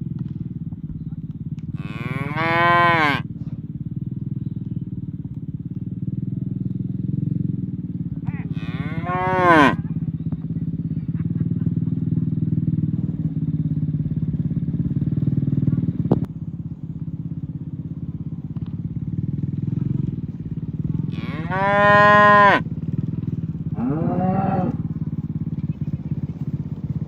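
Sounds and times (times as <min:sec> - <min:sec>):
cattle mooing: 0:01.8 - 0:03.3, 0:08.2 - 0:09.9, 0:21.0 - 0:22.7, 0:23.6 - 0:24.9.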